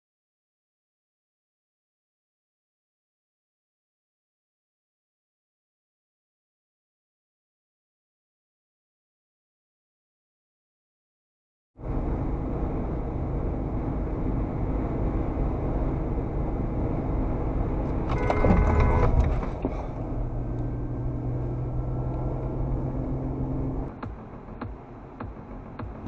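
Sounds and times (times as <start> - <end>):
car road and engine noise: 11.8 - 26.0
car horn: 17.9 - 20.0.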